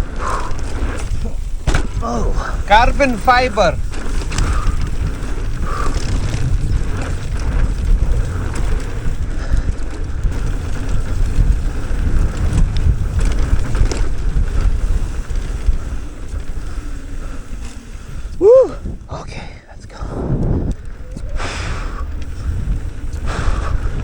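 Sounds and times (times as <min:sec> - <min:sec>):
wind buffeting microphone: 0:00.0 - 0:24.0
bike knocking over rough ground: 0:00.4 - 0:18.4.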